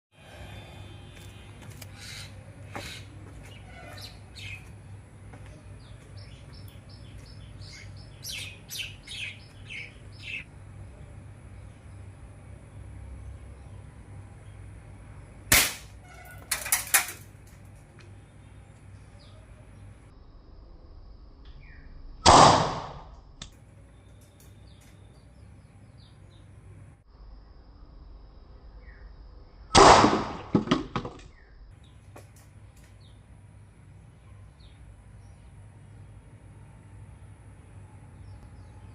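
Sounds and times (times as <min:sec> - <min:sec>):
air rifle shots: 0:15.5 - 0:17.2, 0:22.2 - 0:23.2, 0:29.7 - 0:30.9.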